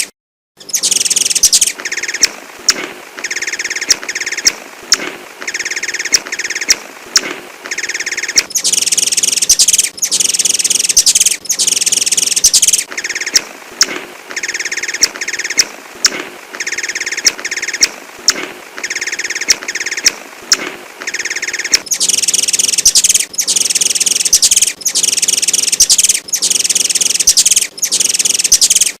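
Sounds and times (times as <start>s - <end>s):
bird chirping: 0.0s - 29.0s
high-pitched bird trills: 0.6s - 2.3s, 7.7s - 13.5s, 21.1s - 29.0s.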